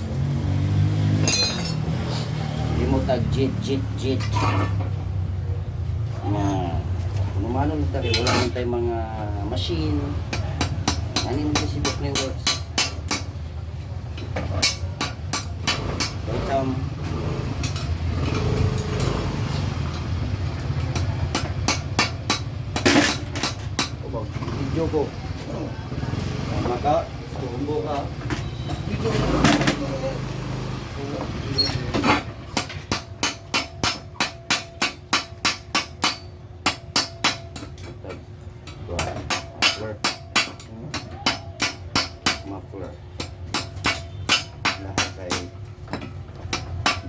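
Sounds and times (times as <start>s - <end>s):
hammer striking metal: 1.1s - 1.9s, 10.3s - 13.4s, 14.3s - 16.4s, 20.9s - 24.0s, 31.9s - 37.9s, 38.6s - 47.0s.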